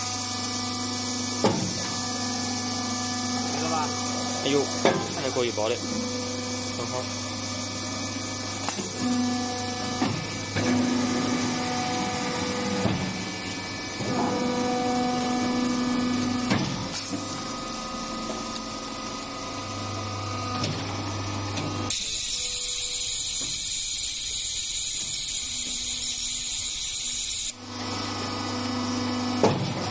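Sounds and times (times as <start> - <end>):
baling machine humming: 0.0 - 29.9
high hiss: 21.9 - 27.6.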